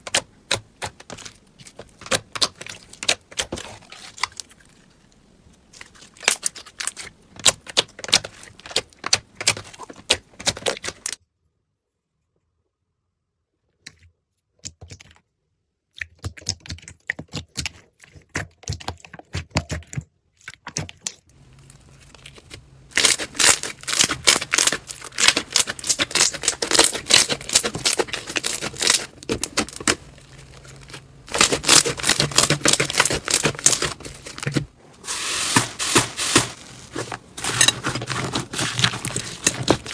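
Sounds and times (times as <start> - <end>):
slime crackling and popping: 21.6 - 39.9.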